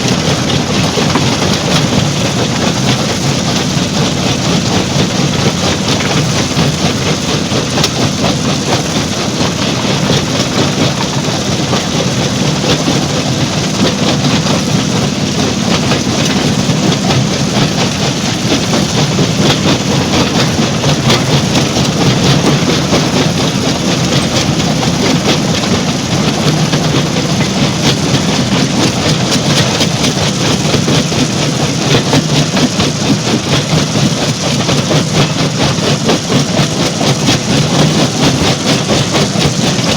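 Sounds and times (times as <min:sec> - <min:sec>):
stone crusher machinery running: 0:00.0 - 0:39.9.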